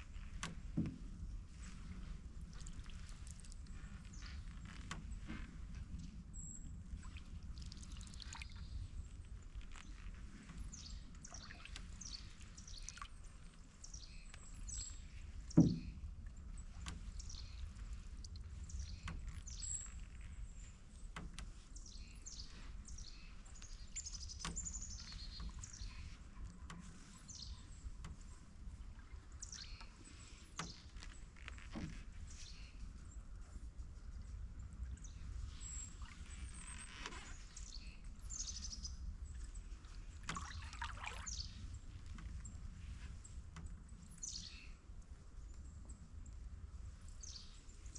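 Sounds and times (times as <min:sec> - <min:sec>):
low rumble of water: 0:00.0 - 0:47.9
small birds chirping: 0:06.0 - 0:16.0, 0:16.8 - 0:31.3, 0:42.4 - 0:44.8.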